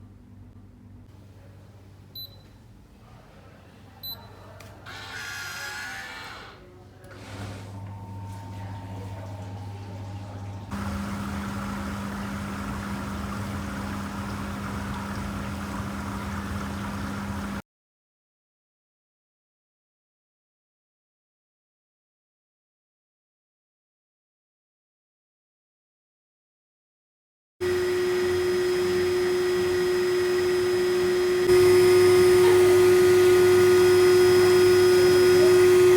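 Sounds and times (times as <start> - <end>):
washing machine humming: 0.0 - 17.6, 27.6 - 35.9
water rushing through machine: 7.3 - 17.6, 27.6 - 35.9.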